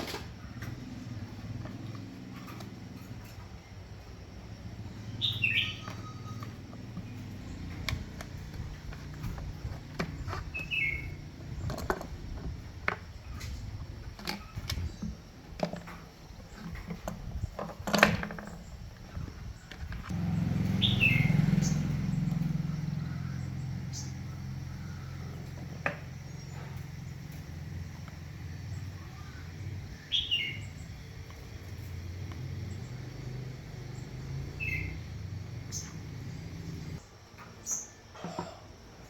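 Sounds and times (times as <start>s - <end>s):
bird chirping: 0.5s - 12.4s, 18.4s - 37.0s.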